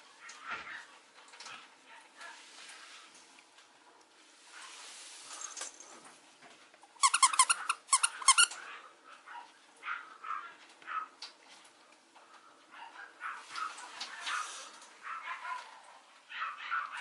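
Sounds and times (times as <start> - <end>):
puppy yipping: 7.0 - 11.1, 12.8 - 17.0.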